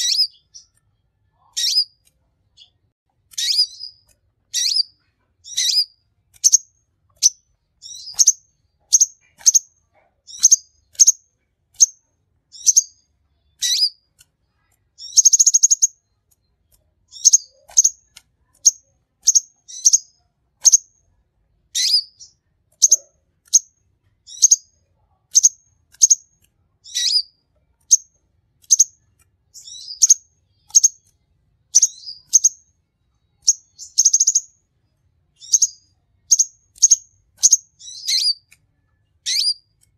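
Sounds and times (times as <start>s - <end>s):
sunbird high thin chirps: 3.3s - 6.6s, 13.6s - 14.0s, 35.4s - 38.5s, 39.2s - 39.6s.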